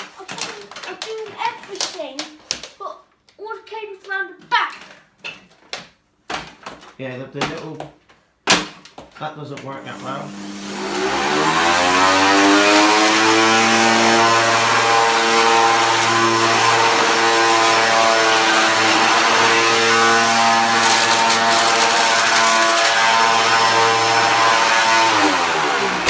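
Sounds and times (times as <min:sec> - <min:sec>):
vacuum cleaner motor whine: 0:09.6 - 0:26.0.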